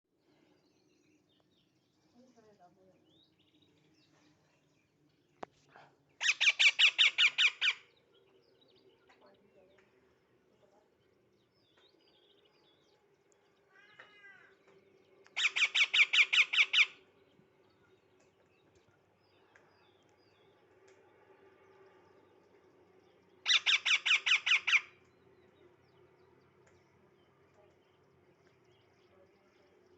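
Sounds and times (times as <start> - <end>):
baby parrot squawking: 6.2 - 7.8.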